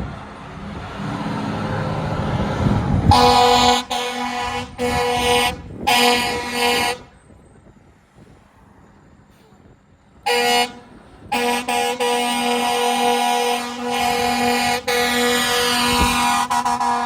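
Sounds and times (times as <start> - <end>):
heavy vehicle rumbling past: 0.0 - 17.0
air horn blasts: 3.0 - 7.1, 10.3 - 17.0.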